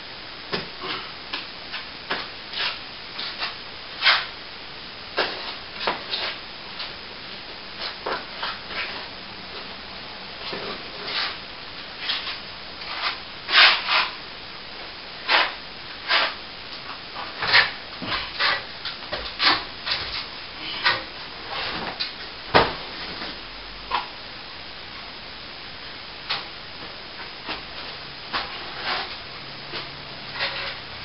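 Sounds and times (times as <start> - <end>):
plastering tool scraping plaster: 1.7 - 4.3, 5.2 - 6.4, 10.5 - 11.4, 12.0 - 14.2, 15.2 - 16.4, 17.2 - 22.0, 28.3 - 29.2, 29.8 - 30.8.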